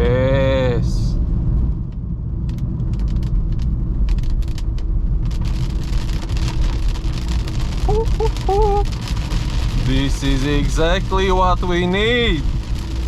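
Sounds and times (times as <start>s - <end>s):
car engine rumbling: 0.0s - 13.0s
raindrops ticking on car: 1.7s - 13.0s
rain hiss: 5.2s - 13.0s.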